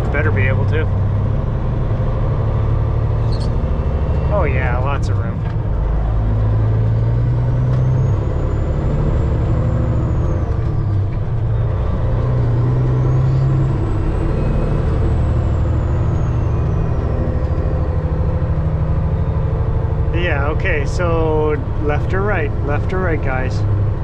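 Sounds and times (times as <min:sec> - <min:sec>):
truck diesel engine drone: 0:00.0 - 0:24.0.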